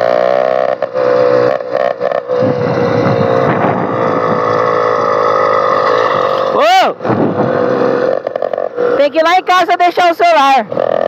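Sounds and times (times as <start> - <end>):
two-stroke engine buzzing: 0.0 - 11.0.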